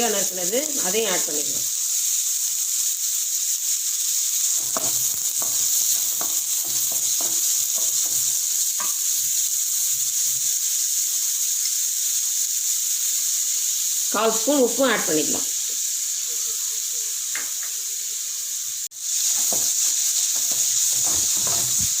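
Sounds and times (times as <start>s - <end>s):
onions sizzling in hot oil: 0.0s - 22.0s
spatula stirring: 4.4s - 9.2s, 19.2s - 22.0s.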